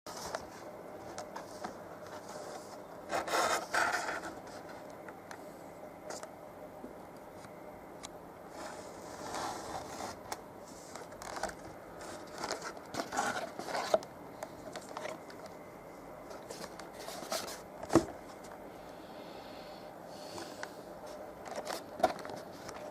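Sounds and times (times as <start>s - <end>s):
packaging rustling and crinkling: 8.5s - 14.0s, 21.1s - 22.9s.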